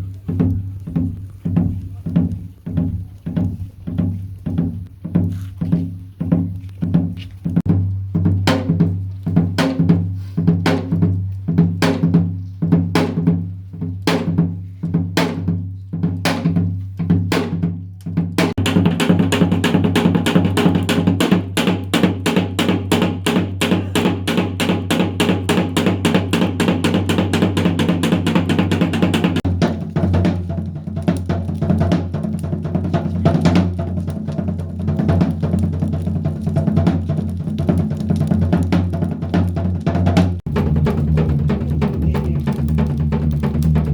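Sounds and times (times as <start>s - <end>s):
hourglass drum playing: 18.4s - 37.9s, 39.8s - 43.9s.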